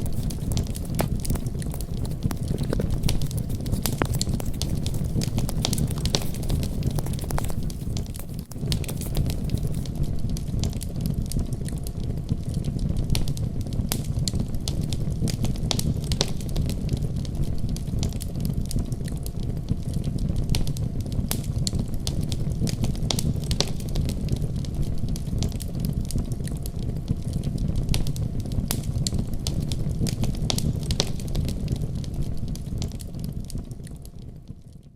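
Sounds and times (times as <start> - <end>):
fireplace fire crackling: 0.0 - 17.2
low rumble of flames: 7.6 - 34.7.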